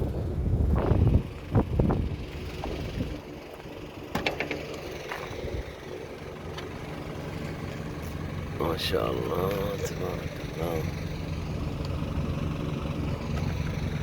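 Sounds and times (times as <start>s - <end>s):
wind buffeting microphone: 0.0s - 3.9s
vehicle engine idling: 0.0s - 14.0s.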